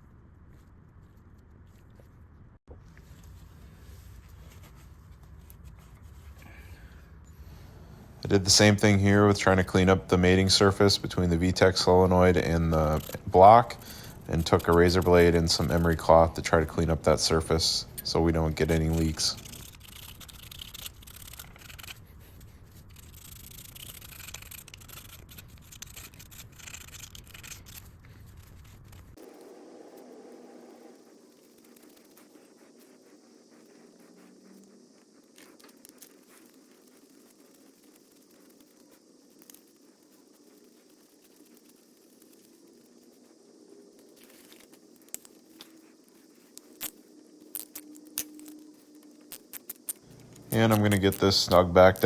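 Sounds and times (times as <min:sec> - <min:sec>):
faint steady hum: 0:00.0 - 0:52.0
hand sanding metal surface: 0:08.1 - 0:21.9, 0:48.0 - 0:52.0.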